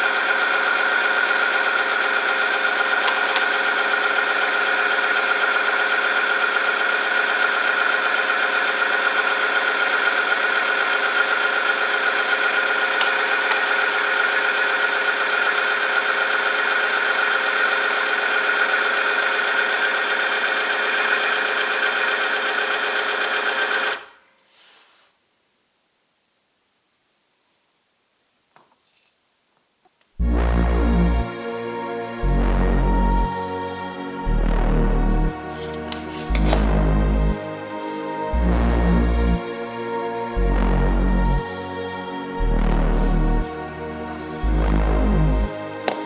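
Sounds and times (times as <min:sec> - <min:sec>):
machine motor whining: 0:00.0 - 0:24.1, 0:33.8 - 0:38.6.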